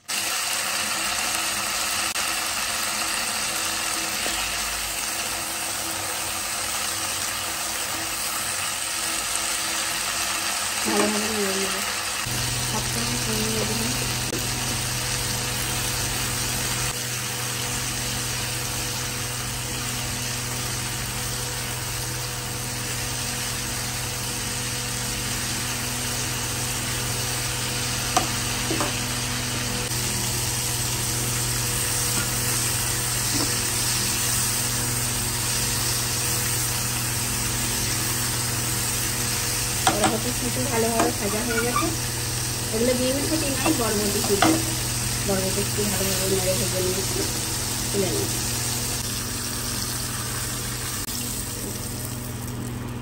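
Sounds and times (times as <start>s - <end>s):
beans sizzling in oil: 0.0s - 53.0s
spatula knocking pan: 28.1s - 29.0s, 39.8s - 42.0s, 43.5s - 44.8s.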